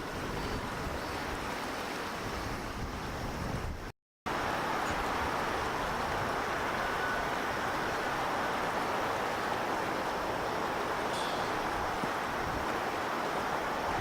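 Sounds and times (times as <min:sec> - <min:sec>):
wind buffeting microphone: 0:00.0 - 0:03.9
waves at the shore: 0:00.0 - 0:14.0.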